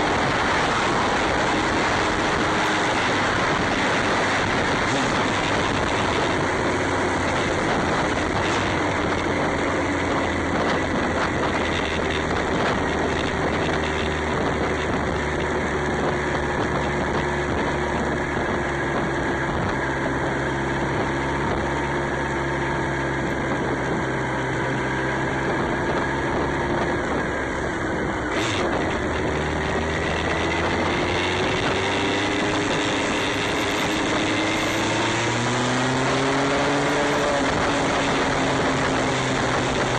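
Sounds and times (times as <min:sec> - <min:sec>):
motorcycle engine running: 0:00.0 - 0:39.9
wind noise: 0:00.0 - 0:39.9.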